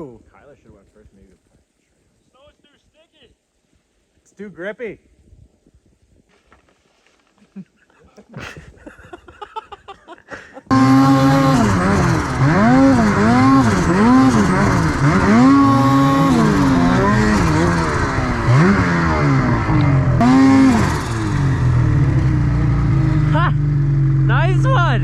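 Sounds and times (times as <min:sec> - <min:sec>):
snowmobile engine revving: 0:10.7 - 0:25.0.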